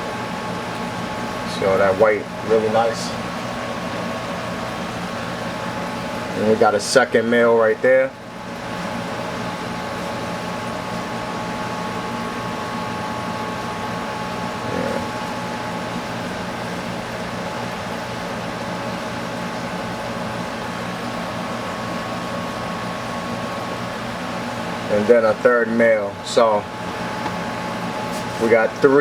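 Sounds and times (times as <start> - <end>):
fan machine hum: 0.0 - 29.0.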